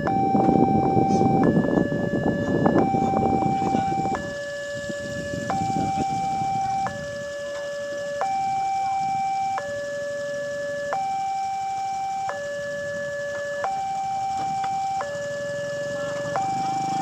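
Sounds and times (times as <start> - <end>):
level crossing two-tone alarm: 0.0 - 17.0.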